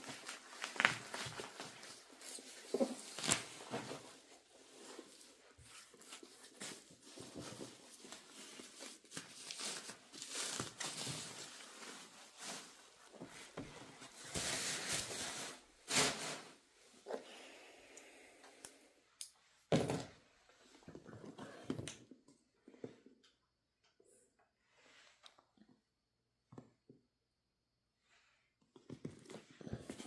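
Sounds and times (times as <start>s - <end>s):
packaging rustling and crinkling: 0.0s - 16.6s.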